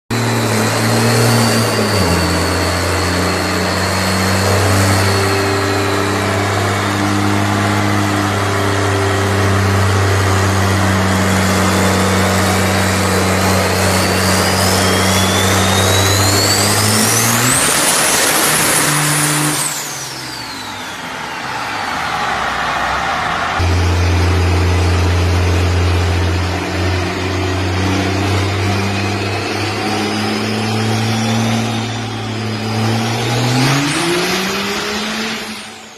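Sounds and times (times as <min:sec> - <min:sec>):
truck engine droning: 0:00.0 - 0:35.9
high whistle: 0:00.1 - 0:35.9.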